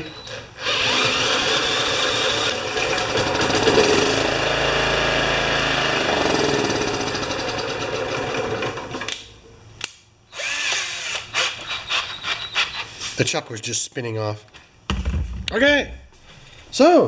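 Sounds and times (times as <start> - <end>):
power drill straining: 0.6 - 9.1, 10.3 - 12.9.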